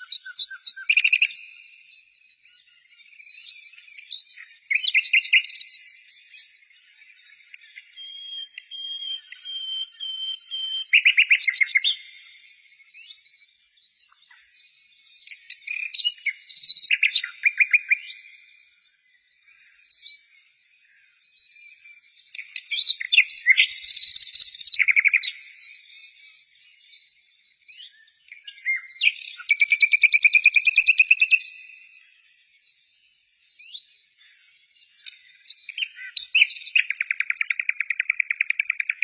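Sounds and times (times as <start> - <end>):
bird fast repeated chirps: 4.3 - 5.7, 7.8 - 12.2, 21.9 - 25.6, 28.8 - 31.6, 34.6 - 39.0.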